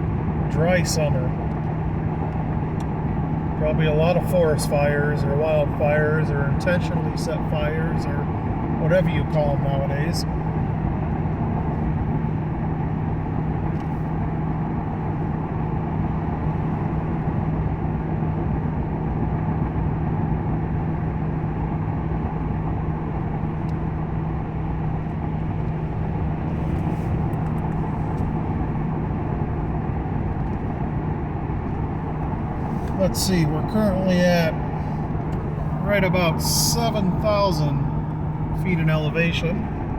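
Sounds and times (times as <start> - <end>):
engine hum: 0.0 - 39.9
road and tyre noise: 0.0 - 39.9.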